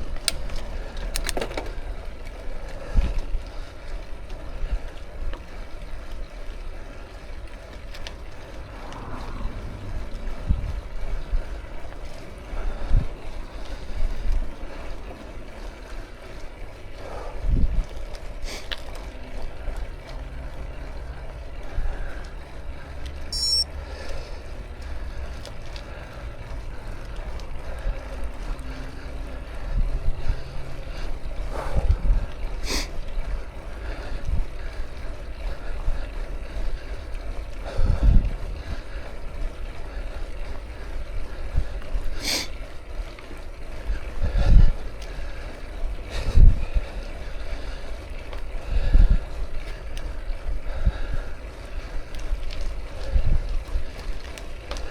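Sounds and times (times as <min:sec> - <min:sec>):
bicycle tyres rolling: 0:00.0 - 0:54.9
low hum: 0:08.0 - 0:12.4
wind buffeting microphone: 0:08.1 - 0:13.4, 0:37.7 - 0:39.0.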